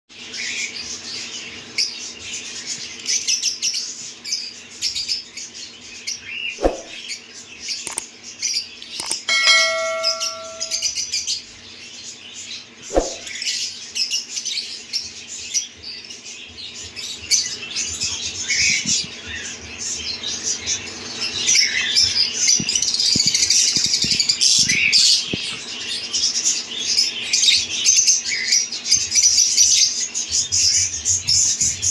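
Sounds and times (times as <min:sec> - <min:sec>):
lovebirds chattering and chirping: 0:00.2 - 0:31.9
sharp clicks: 0:07.9 - 0:08.1, 0:08.8 - 0:09.3
bell-like ring: 0:09.2 - 0:11.0.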